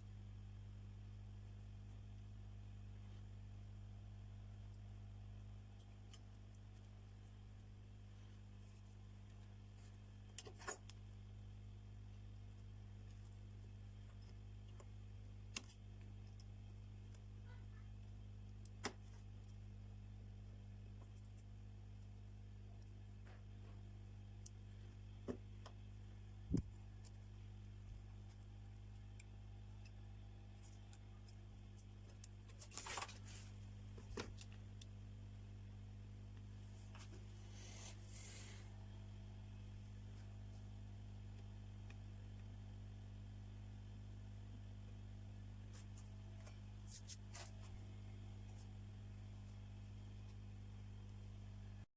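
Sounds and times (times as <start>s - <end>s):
faint electrical hum: 0.0s - 51.9s.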